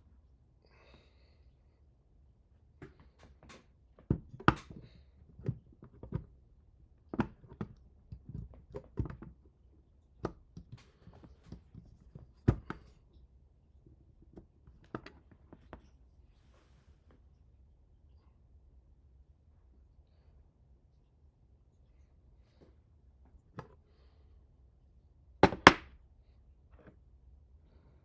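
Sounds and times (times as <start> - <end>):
clicks and knocks of parts handled: 2.8 - 4.8.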